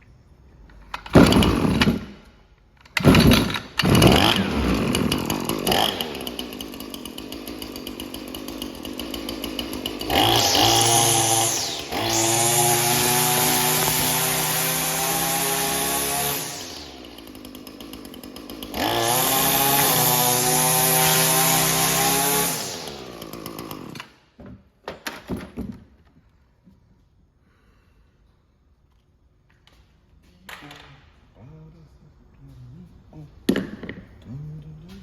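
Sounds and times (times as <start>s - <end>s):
string trimmer engine revving: 1.1s - 2.1s, 3.0s - 24.0s.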